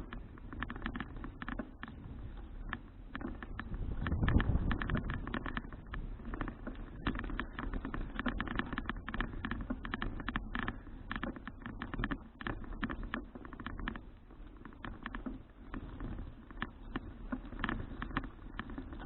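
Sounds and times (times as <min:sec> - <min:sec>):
bicycle clicking and rattling: 0:00.0 - 0:19.0
wind rumble on microphone: 0:00.0 - 0:19.0.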